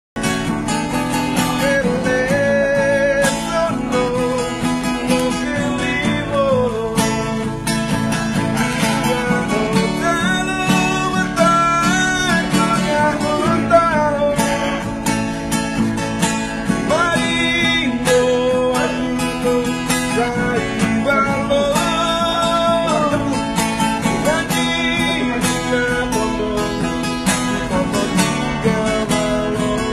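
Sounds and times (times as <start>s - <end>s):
strummed acoustic guitar: 0.2s - 29.9s
person singing with vibrato: 0.9s - 15.4s.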